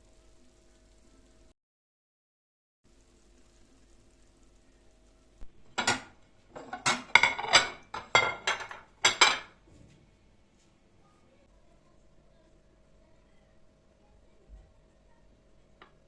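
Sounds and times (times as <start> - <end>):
dishes and cutlery clinking: 5.7 - 9.9.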